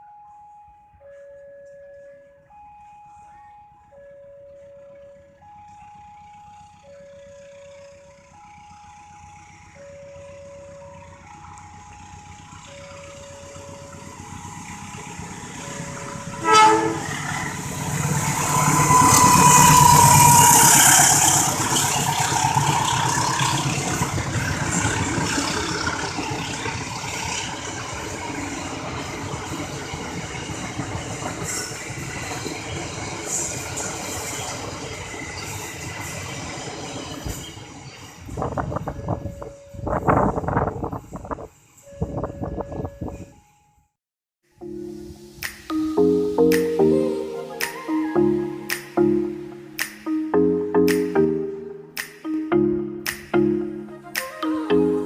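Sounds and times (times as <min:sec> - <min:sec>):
train passing: 0:04.7 - 0:41.4, 0:44.6 - 0:55.0
level crossing alarm two tones: 0:08.2 - 0:24.2, 0:44.6 - 0:55.0
locomotive horn blast: 0:16.2 - 0:24.2.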